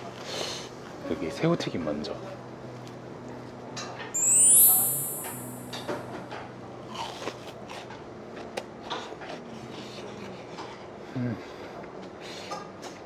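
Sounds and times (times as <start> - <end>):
sparkling chime sound effect: 4.2 - 5.8
crunchy biting and chewing: 6.9 - 8.5.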